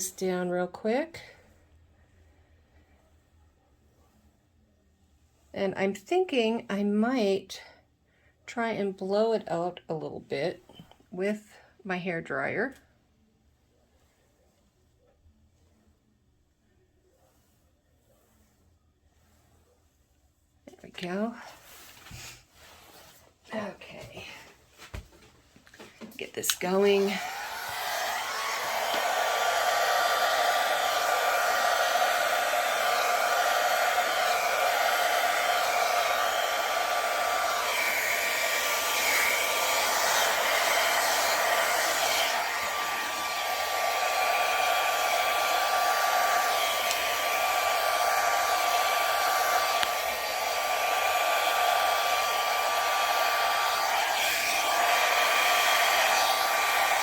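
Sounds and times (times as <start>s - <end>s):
hair dryer blowing: 0.0s - 1.3s, 26.0s - 57.0s.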